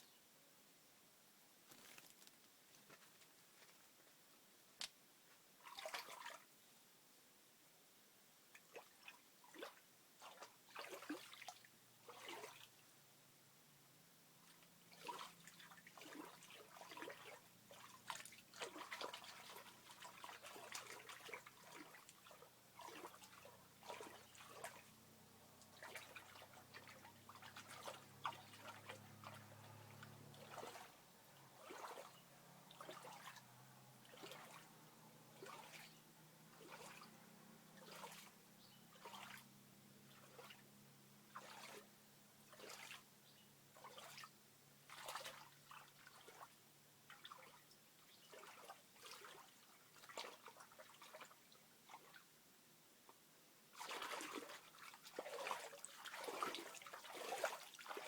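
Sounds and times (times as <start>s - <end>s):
water trickling and dripping: 14.4s - 40.7s, 53.8s - 58.0s.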